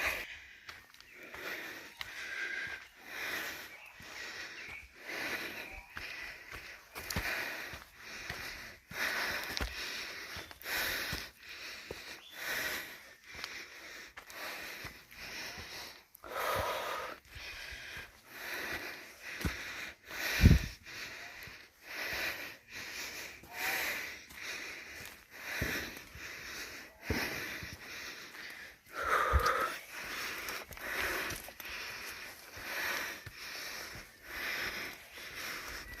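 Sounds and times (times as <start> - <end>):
person breathing hard and wheezing: 0.0 - 36.0.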